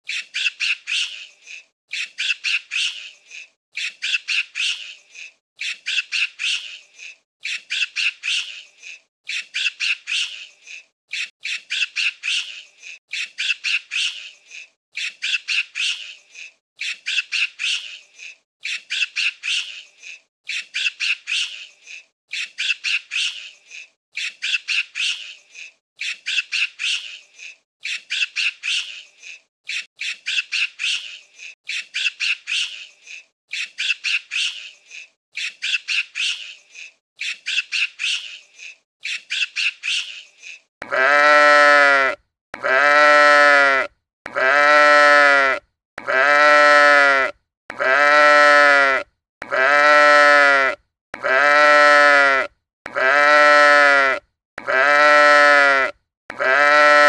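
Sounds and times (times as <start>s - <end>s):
animal squawking: 39.6s - 57.0s.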